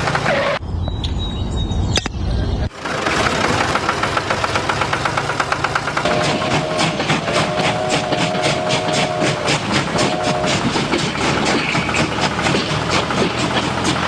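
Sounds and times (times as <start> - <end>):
train chugging: 0.0 - 0.4, 2.7 - 14.0
train whistle: 6.1 - 11.0.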